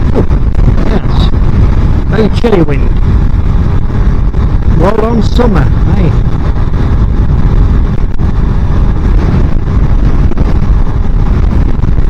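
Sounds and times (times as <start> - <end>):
wind buffeting on microphone: 0.0 - 12.0
motorcycle engine running: 2.9 - 12.0.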